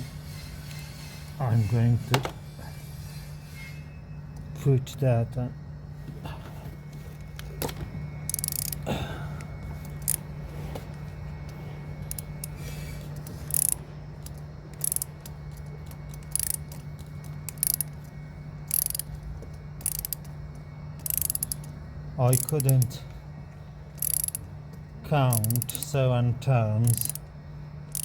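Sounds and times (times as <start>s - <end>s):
steady low hum: 0.0s - 28.0s
ratchet wrench clicking: 8.3s - 8.8s, 9.8s - 10.2s, 12.0s - 12.6s, 13.2s - 19.2s, 19.8s - 20.4s, 21.0s - 23.0s, 23.9s - 24.5s, 25.3s - 25.9s, 26.8s - 27.3s.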